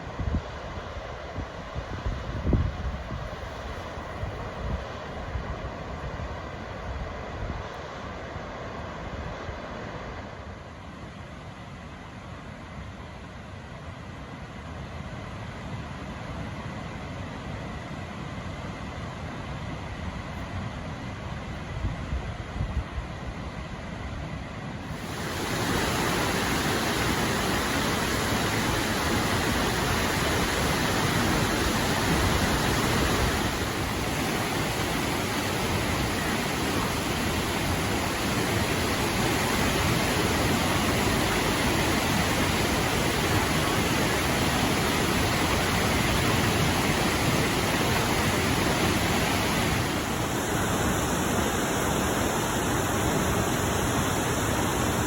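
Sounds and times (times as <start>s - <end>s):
waterfall rushing: 24.9s - 55.0s.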